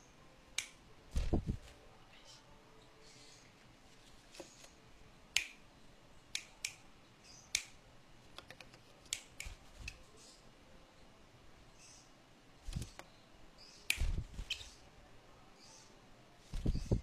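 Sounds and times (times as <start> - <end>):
sharp irregular clicks and taps: 7.5 - 9.6
faint high chirping: 9.4 - 17.0.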